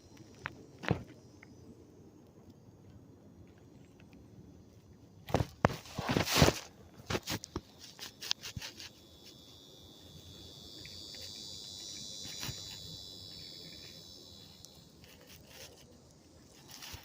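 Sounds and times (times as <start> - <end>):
high-pitched insect buzz: 0.0 - 1.8, 5.3 - 17.0.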